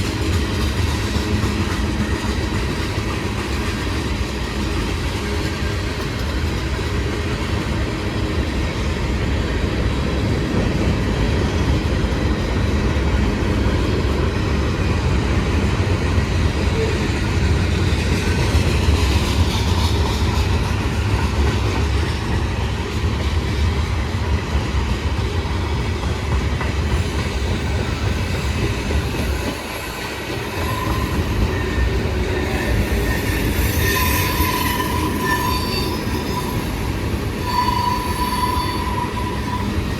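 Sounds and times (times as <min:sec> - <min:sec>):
freight train rumble and wheel clatter: 0:00.0 - 0:39.9
high wheel squeal: 0:29.3 - 0:39.9.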